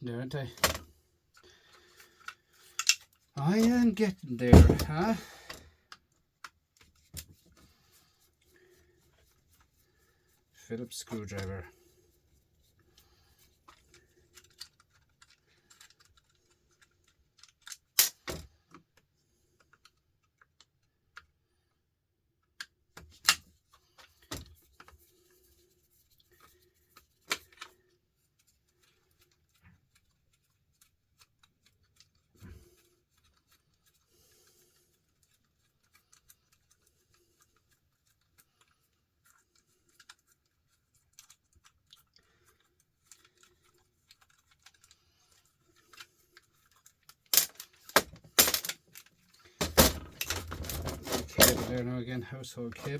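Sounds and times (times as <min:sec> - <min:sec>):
screwdriver and parts clicking: 0:02.8 - 0:03.8, 0:47.2 - 0:51.8.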